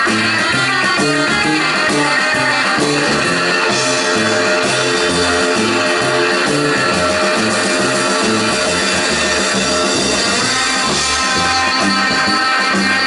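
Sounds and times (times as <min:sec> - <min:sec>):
drums: 0:00.0 - 0:13.0
electric guitar: 0:00.0 - 0:13.0
walking bass line: 0:00.0 - 0:13.0.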